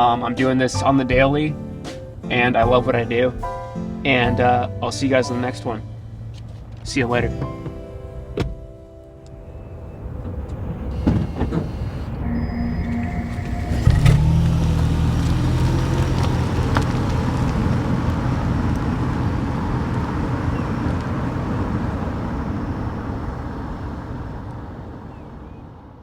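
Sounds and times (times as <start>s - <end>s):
engine running low: 9.2s - 26.0s
vehicle engine starting with knock: 10.2s - 12.1s, 12.9s - 23.6s.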